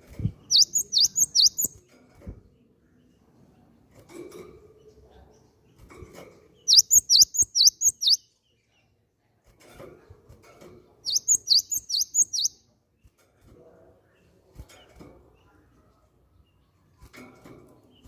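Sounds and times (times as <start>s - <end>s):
bird singing high whistled notes: 0.5s - 1.8s, 6.7s - 8.3s, 11.1s - 12.6s.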